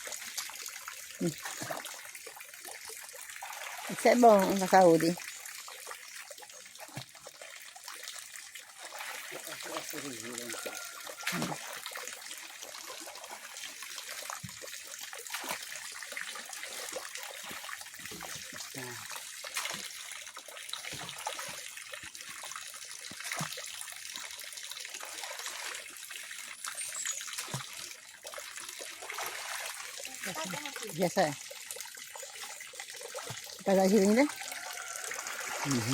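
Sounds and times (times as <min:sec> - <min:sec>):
pond water splashing: 0:00.0 - 0:35.9
strokes through water: 0:27.0 - 0:30.6.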